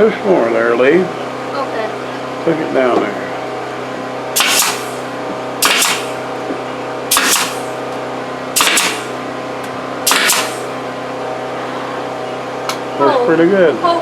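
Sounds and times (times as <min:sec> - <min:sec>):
generator droning: 0:00.0 - 0:14.0
air tool compressed air bursts: 0:04.4 - 0:06.2, 0:07.1 - 0:07.8, 0:08.6 - 0:09.2, 0:10.0 - 0:10.8.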